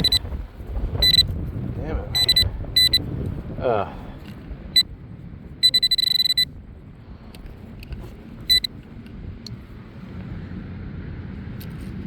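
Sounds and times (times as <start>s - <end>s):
pinpointer beeping: 0.0s - 0.2s, 1.0s - 1.3s, 2.2s - 3.0s, 5.6s - 6.5s, 8.5s - 8.7s
wind buffeting microphone: 0.0s - 5.8s.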